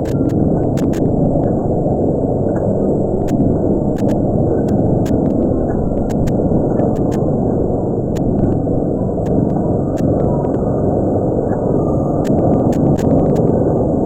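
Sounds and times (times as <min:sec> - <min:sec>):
sharp clicks: 0:00.0 - 0:01.1, 0:03.2 - 0:05.4, 0:06.0 - 0:07.3.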